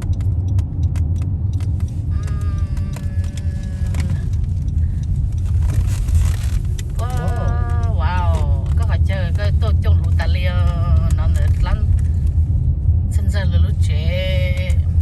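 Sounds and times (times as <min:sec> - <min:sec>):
car road noise rumble: 0:00.0 - 0:15.0
light clicks and rattles: 0:00.0 - 0:15.0.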